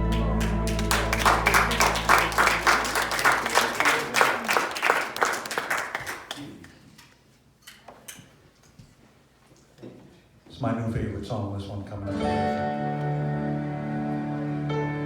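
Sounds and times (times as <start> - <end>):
low note of backing music: 0.0 - 3.4, 12.1 - 15.0
congregation applauding: 0.0 - 6.8.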